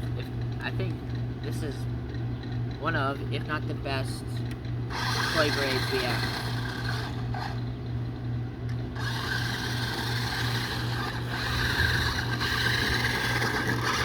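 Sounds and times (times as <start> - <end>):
pulsing low hum: 0.0 - 14.0
toy truck motor whirring: 4.9 - 7.7, 8.9 - 14.0.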